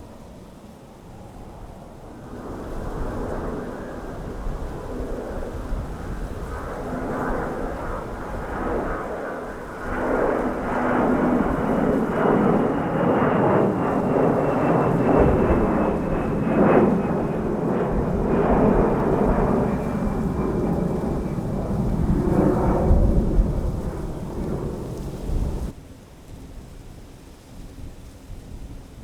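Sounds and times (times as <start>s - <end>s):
jet engines rumbling: 0.0s - 25.8s.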